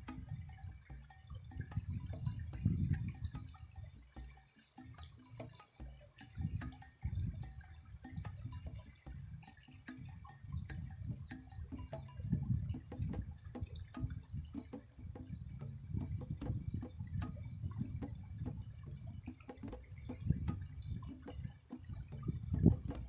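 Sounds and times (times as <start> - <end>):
soft low thumps: 1.7 - 3.5.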